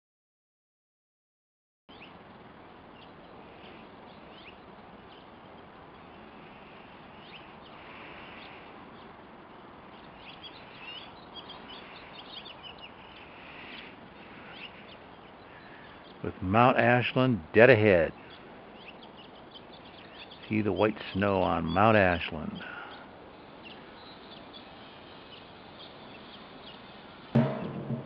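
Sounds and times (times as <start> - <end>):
small birds chirping: 1.9 - 28.0
steady hiss: 1.9 - 28.0.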